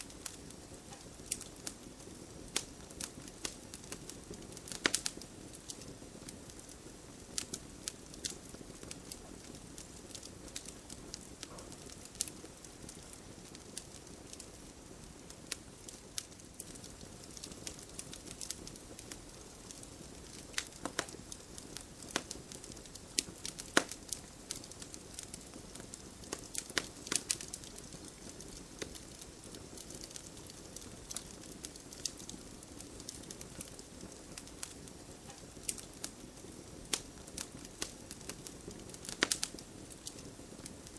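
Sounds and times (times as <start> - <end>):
bonfire crackling and popping: 0.0 - 40.9.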